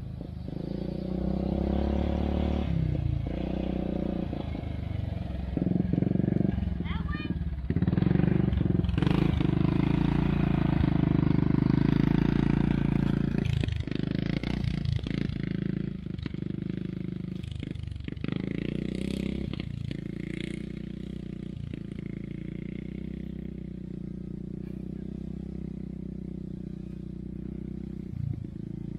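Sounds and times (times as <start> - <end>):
atv engine running: 0.0 - 28.9.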